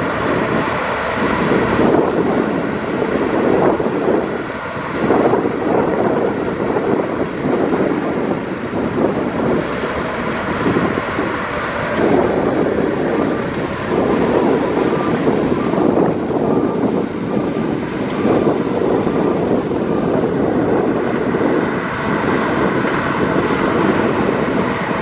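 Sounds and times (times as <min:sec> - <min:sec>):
heavy diesel machinery rumbling: 0:00.0 - 0:25.0.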